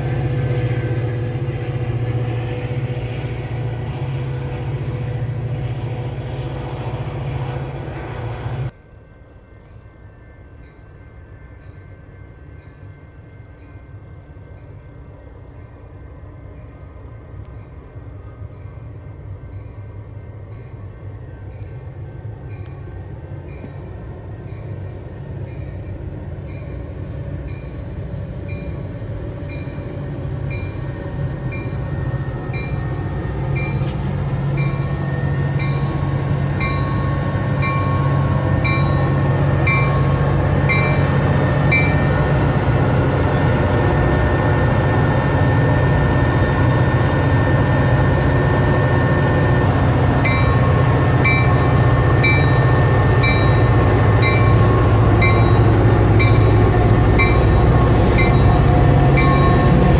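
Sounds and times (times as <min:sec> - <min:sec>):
diesel locomotive engine rumble: 0:00.0 - 0:59.9
rhythmic bell ringing: 0:50.2 - 0:56.6, 0:58.2 - 0:59.8.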